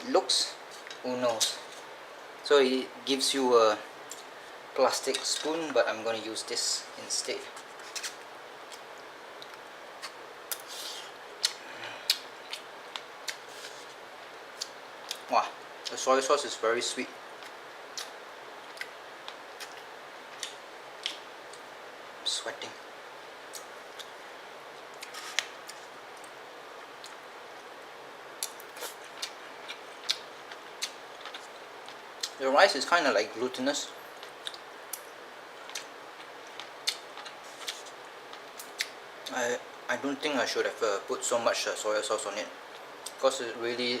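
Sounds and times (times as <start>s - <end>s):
steady background hiss: 0.0s - 44.0s
light eating clicks and taps: 28.4s - 32.4s.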